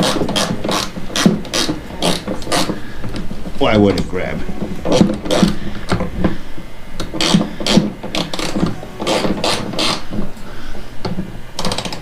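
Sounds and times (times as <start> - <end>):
tool scraping against metal: 7.0 - 10.2.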